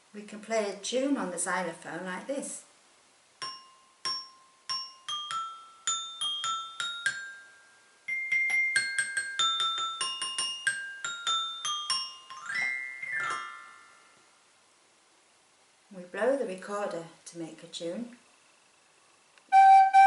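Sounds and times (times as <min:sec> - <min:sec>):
toy xylophone tune: 0:03.4 - 0:13.8
xylophone glissando: 0:03.4 - 0:14.1.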